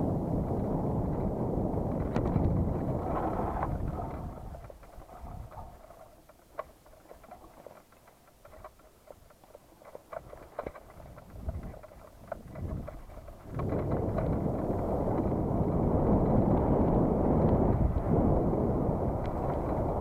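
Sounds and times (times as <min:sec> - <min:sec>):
wind buffeting microphone: 0:00.0 - 0:08.8, 0:10.1 - 0:20.0
light clicks: 0:03.6 - 0:15.3.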